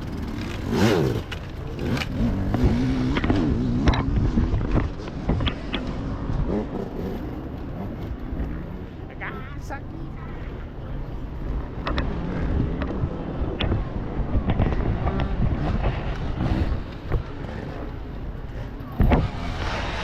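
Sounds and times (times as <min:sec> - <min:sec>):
motorcycle engine running: 0:00.0 - 0:09.1
wind buffeting microphone: 0:01.6 - 0:20.0.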